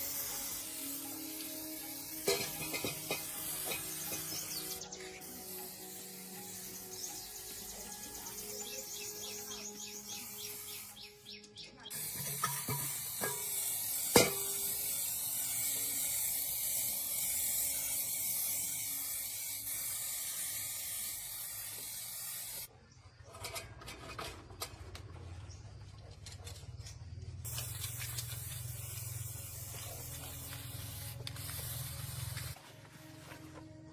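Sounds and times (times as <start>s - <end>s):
steady spraying hiss: 0.0s - 22.7s, 27.5s - 33.2s.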